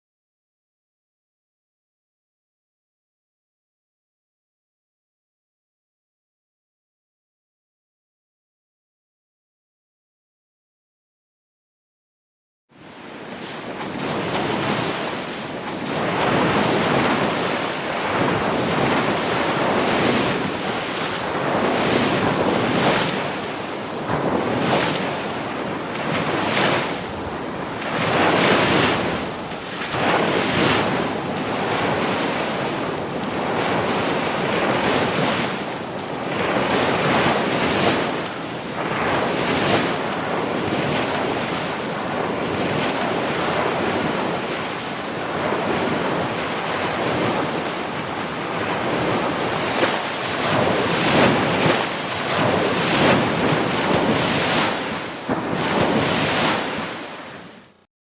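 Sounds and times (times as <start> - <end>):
ocean waves breaking: 12.8 - 57.8.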